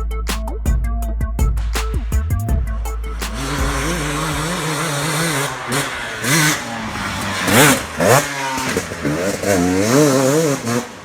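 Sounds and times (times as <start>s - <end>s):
dirt bike engine revving: 3.3s - 11.0s.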